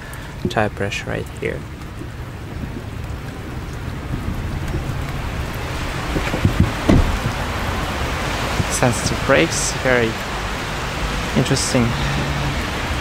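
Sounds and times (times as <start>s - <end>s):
dull low thumps: 0.0s - 9.3s
rain falling: 0.0s - 13.0s.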